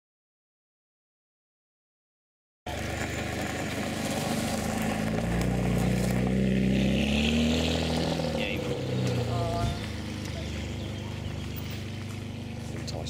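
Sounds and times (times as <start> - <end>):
car engine pulling away: 2.7 - 13.0.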